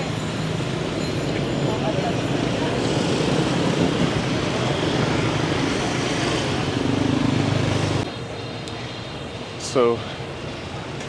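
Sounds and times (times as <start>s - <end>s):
vehicle engine passing close: 0.0s - 8.1s
street traffic: 0.0s - 11.0s.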